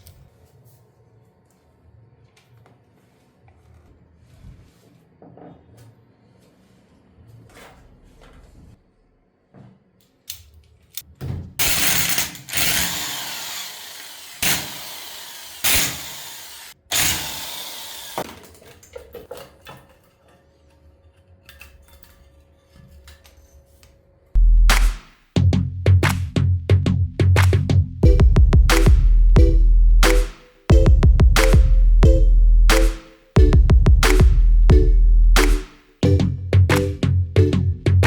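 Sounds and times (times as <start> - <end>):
clicks and knocks of parts handled: 10.0 - 11.1
power tool running: 11.6 - 18.3.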